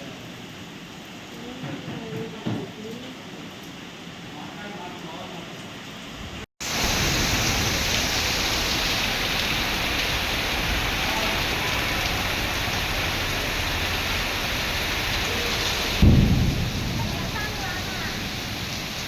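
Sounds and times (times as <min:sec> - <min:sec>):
heavy rain pouring: 0:00.0 - 0:19.0
thunder boom: 0:15.6 - 0:19.0.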